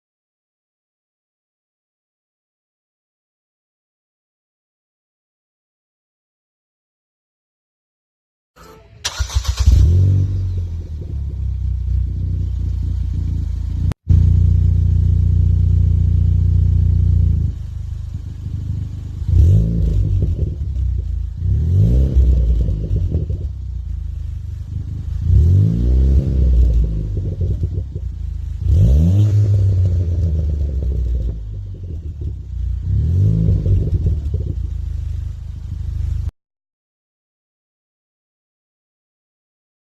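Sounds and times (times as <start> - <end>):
car engine revving: 8.6 - 36.3.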